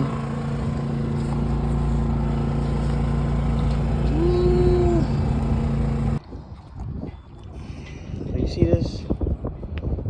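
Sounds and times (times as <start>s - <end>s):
generator humming: 0.0s - 6.2s.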